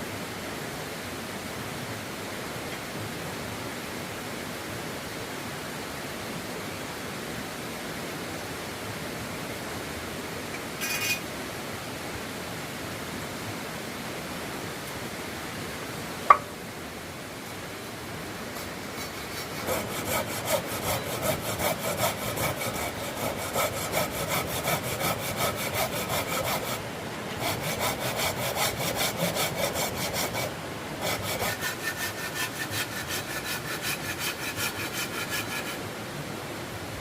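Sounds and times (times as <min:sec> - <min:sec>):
hand saw cutting wood: 0:18.5 - 0:35.8.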